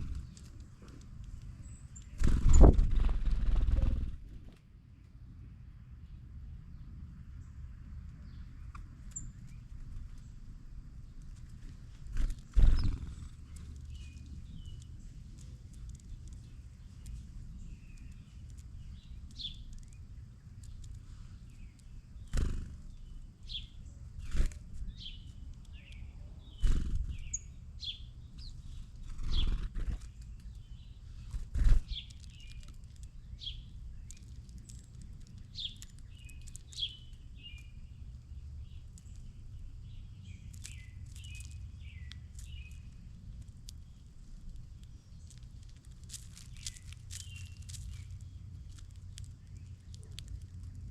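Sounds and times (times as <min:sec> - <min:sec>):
songbirds chirping: 0:00.0 - 0:50.9
thumps and wing flutters: 0:02.2 - 0:04.6, 0:12.1 - 0:13.4, 0:29.1 - 0:30.1.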